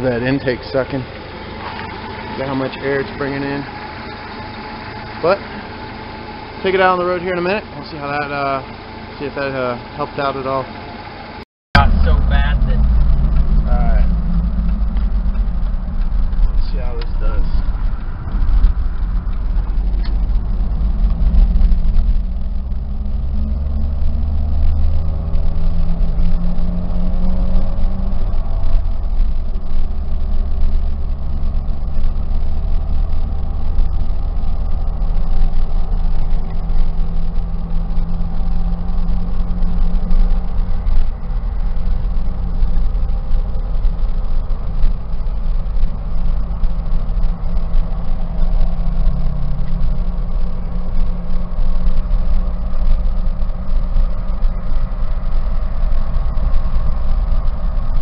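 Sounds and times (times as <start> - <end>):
car engine running: 0.0 - 58.0
road noise: 0.0 - 58.0.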